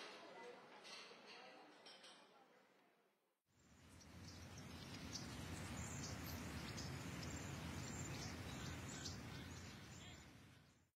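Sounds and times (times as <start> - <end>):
steady low background noise: 2.4 - 10.9
small birds chirping: 3.6 - 10.9.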